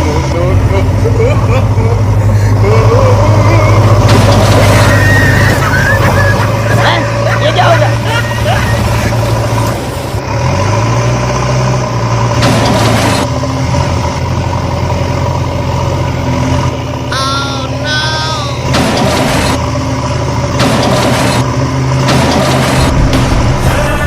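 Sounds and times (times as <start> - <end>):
constant whine: 0.0 - 10.3
heavy engine running: 0.0 - 24.0.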